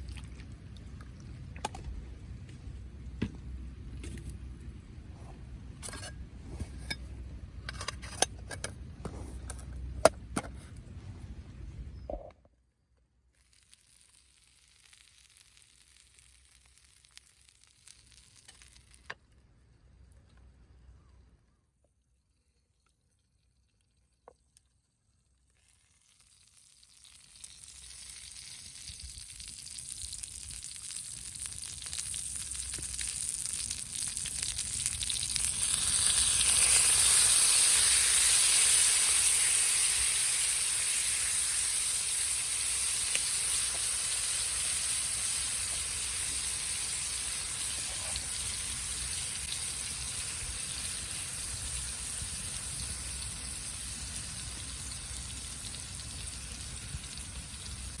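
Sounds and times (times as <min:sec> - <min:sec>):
food sizzling in a pan: 0:13.4 - 0:19.1, 0:25.6 - 0:58.0.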